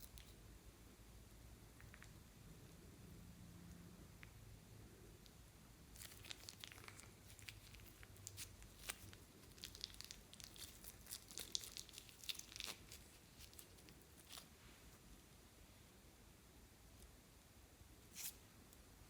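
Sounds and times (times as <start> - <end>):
sticky slime crackles and clicks: 6.0 - 14.4.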